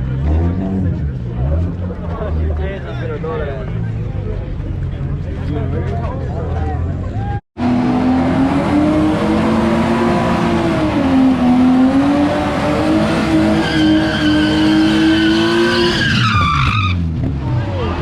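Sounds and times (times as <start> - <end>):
tires screeching: 7.1 - 18.0
car engine revving high: 7.6 - 17.5.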